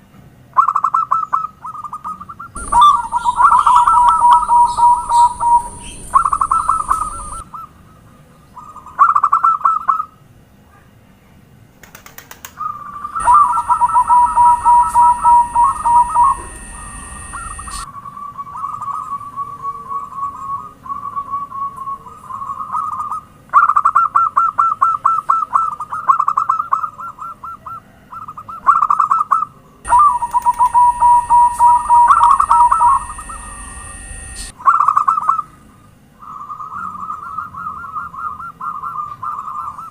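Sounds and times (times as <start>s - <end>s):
steady high hiss: 2.6s - 7.4s, 13.2s - 17.9s, 29.9s - 34.6s
doves cooing: 2.6s - 7.7s, 12.5s - 17.9s, 29.9s - 34.5s.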